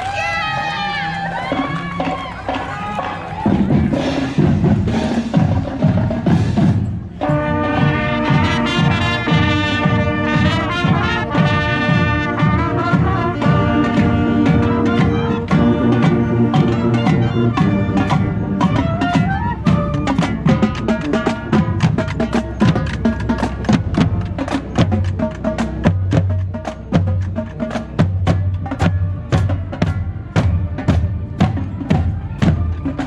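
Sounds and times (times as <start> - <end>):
marching band drums and cymbals: 0.1 - 33.0
brass section chords: 7.2 - 21.8.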